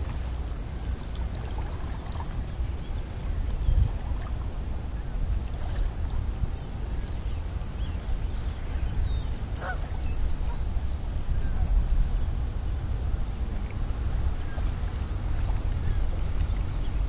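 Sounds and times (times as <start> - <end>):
steady low rumble: 0.0 - 17.0
birds chirping high: 6.4 - 10.6.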